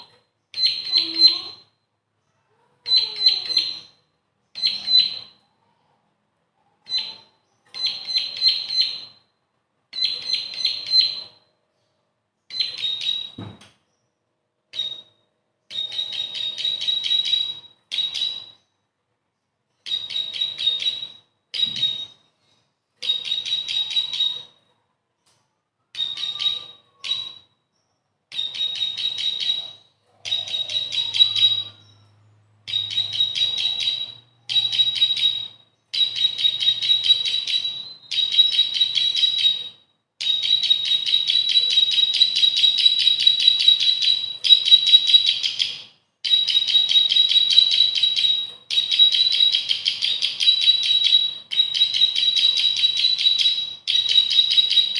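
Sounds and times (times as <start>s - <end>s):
bird singing rapid chipping trill: 0.0s - 1.8s, 2.9s - 5.4s, 6.9s - 9.3s, 12.4s - 14.1s, 26.0s - 54.9s.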